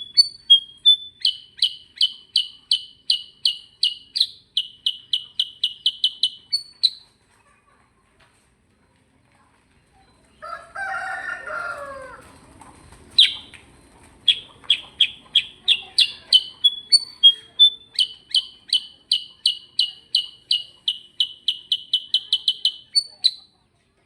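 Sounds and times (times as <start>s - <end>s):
songbird sharp high chirps: 0.0s - 7.0s, 13.2s - 13.6s, 14.3s - 23.5s.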